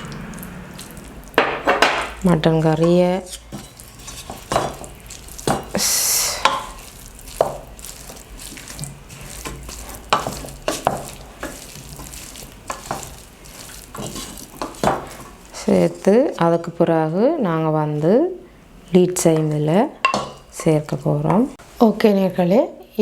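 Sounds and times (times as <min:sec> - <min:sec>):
utensil scraping a dish: 0:02.5 - 0:05.8, 0:06.4 - 0:15.4.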